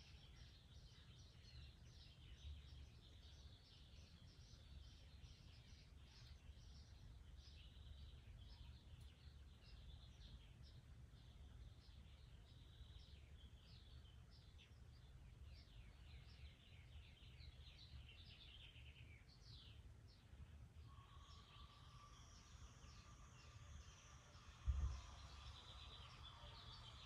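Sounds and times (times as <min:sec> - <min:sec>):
faint birds chirping: 0:00.0 - 0:27.0
low rumble: 0:21.7 - 0:27.0.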